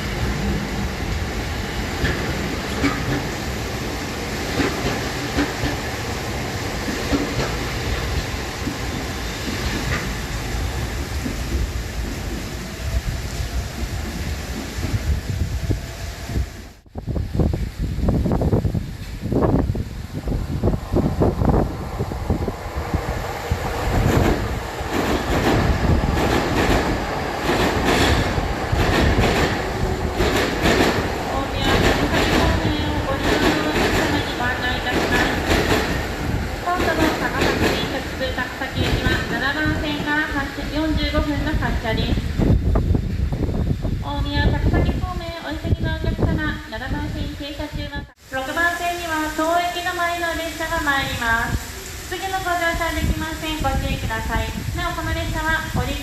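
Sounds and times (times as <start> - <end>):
train rumbling: 0.0 - 56.0
wheels clacking over rail joints: 1.9 - 3.6, 4.4 - 6.2, 24.0 - 40.4.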